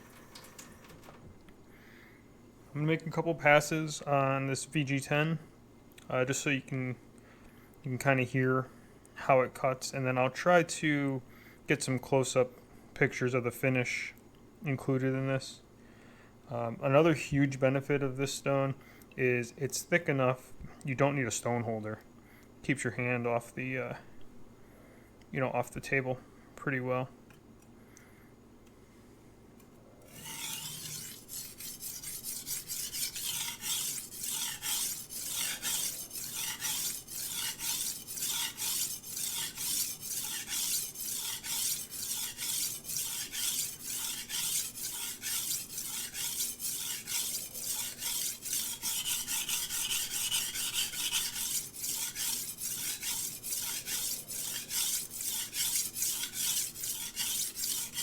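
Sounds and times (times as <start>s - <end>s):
knife rasping on whetstone: 30.1s - 58.0s.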